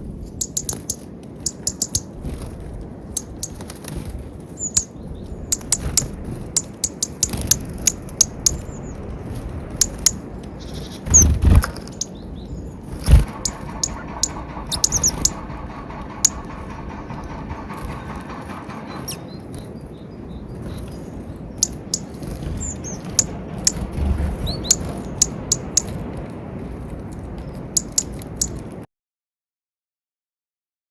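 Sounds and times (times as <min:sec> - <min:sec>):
low thumps: 0:11.0 - 0:12.1, 0:12.7 - 0:19.7
birds pecking clicks: 0:12.9 - 0:19.7, 0:21.6 - 0:28.6
high bird chirps: 0:13.1 - 0:20.4.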